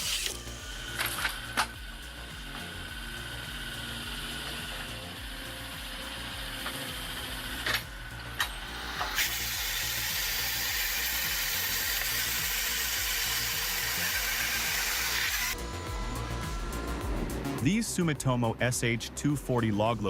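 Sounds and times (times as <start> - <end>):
loud steady hiss: 8.6 - 15.5.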